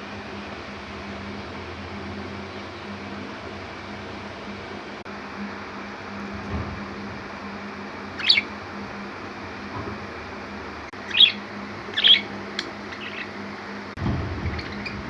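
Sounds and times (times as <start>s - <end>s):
steady low hum: 0.0s - 15.0s
budgies chirping: 8.2s - 8.5s, 11.0s - 12.3s, 12.9s - 13.4s, 14.4s - 15.0s
low rumbling noise: 13.8s - 15.0s.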